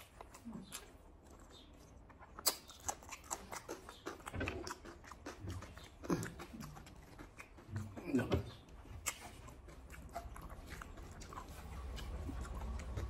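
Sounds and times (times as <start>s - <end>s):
wet chewing and lip-smacking: 0.0s - 13.0s
sharp mouth clicks: 2.1s - 8.1s.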